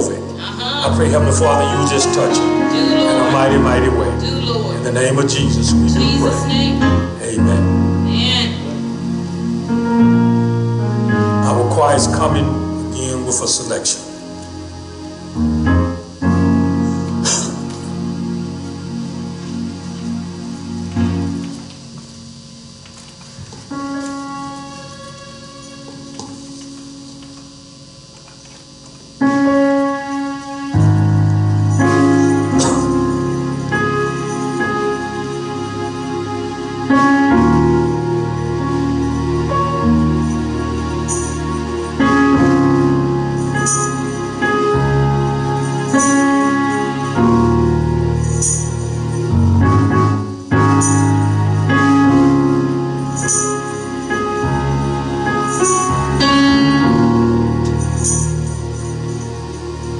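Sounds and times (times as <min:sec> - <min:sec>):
deep bass notes: 0:00.0 - 0:13.2
church keyboard chords: 0:00.0 - 0:59.9.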